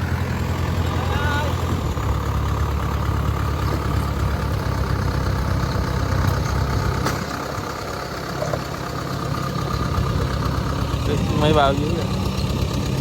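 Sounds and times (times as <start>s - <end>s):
harvester engine rumbling: 0.0s - 13.0s.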